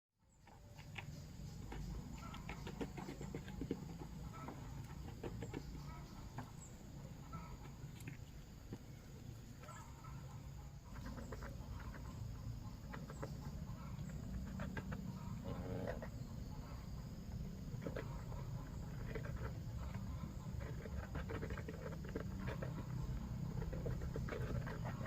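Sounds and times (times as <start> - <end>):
chickens clucking: 0.4 - 25.0
steady low rumble: 6.0 - 25.0.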